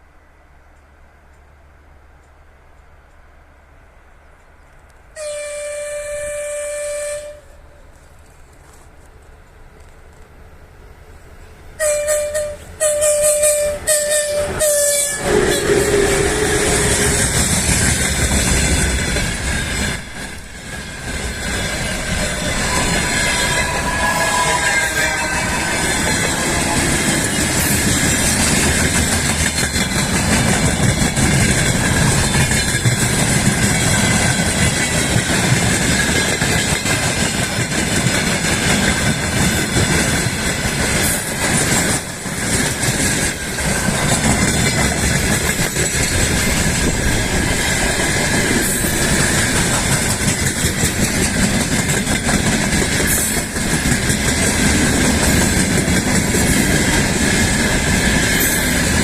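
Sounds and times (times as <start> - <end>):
rail joint clicks: 0.0 - 5.2, 7.5 - 59.0
train wheels rumbling and clattering: 11.8 - 59.0.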